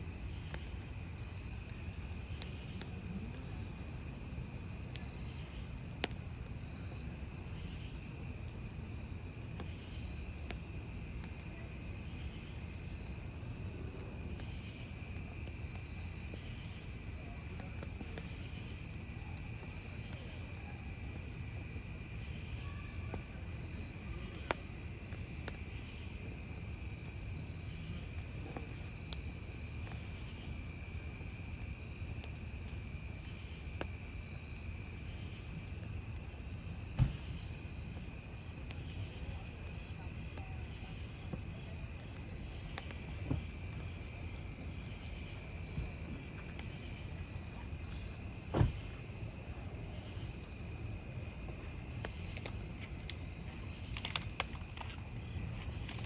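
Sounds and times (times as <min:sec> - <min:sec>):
campfire burning: 0:00.0 - 0:56.0
crickets chirping: 0:00.0 - 0:56.0
logs popping: 0:52.1 - 0:56.0.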